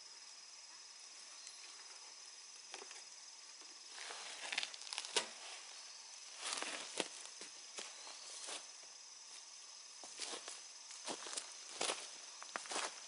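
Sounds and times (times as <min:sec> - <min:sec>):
high-pitched insect drone: 0:00.0 - 0:13.0
crunching of dry litter: 0:03.9 - 0:05.7, 0:06.4 - 0:08.8.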